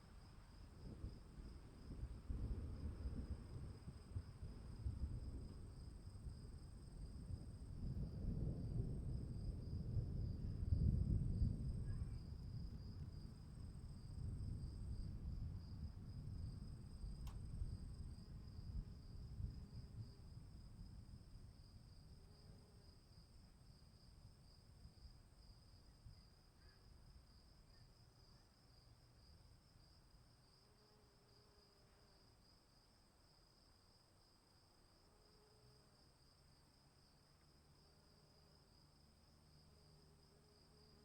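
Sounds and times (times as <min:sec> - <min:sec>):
crickets trilling: 0:02.8 - 0:41.0.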